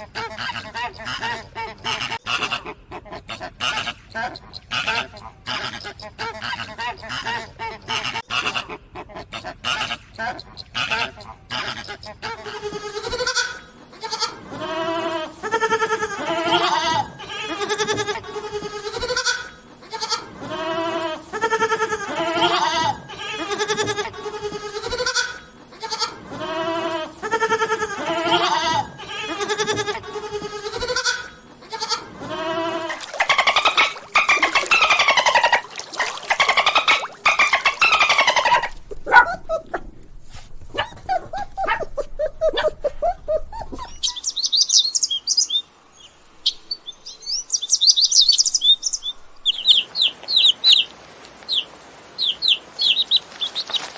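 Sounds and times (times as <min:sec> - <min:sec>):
goats bleating: 0:10.5 - 0:39.6
high dense animal call: 0:31.8 - 0:39.9
high-pitched bird chirps: 0:43.6 - 0:45.6.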